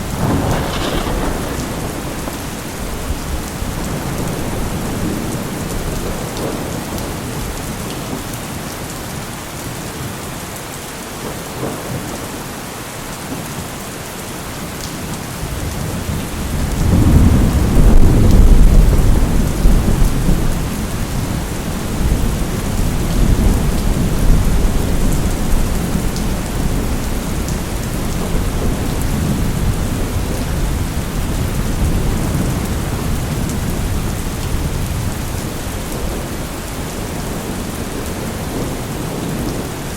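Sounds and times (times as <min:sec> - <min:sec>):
thunder rumbling: 0:00.0 - 0:07.6, 0:15.5 - 0:39.8
heavy rain: 0:00.0 - 0:39.9.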